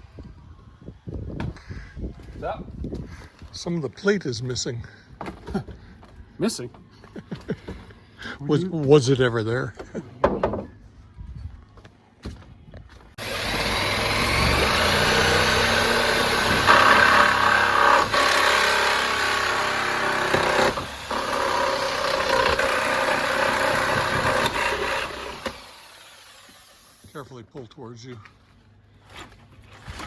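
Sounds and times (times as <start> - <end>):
reciprocating saw cutting nails: 13.2 - 27.0.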